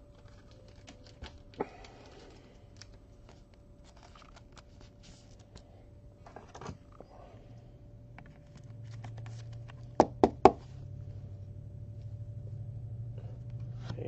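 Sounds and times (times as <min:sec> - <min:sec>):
trading cards clicking and rustling: 0:00.0 - 0:05.6, 0:08.2 - 0:10.0.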